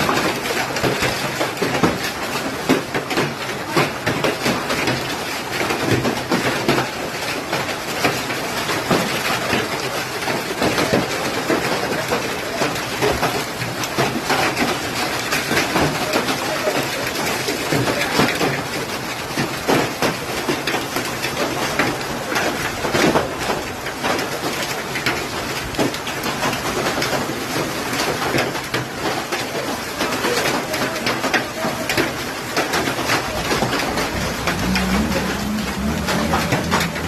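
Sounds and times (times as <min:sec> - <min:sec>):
hailstones clattering on hard surfaces: 0:00.0 - 0:37.0
steady rushing noise: 0:33.2 - 0:37.0.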